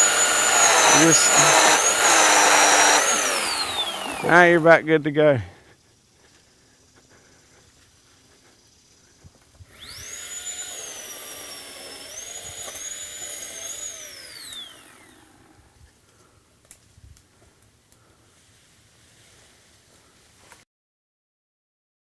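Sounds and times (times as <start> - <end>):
electric chainsaw whining: 0.0 - 5.2, 9.6 - 15.8.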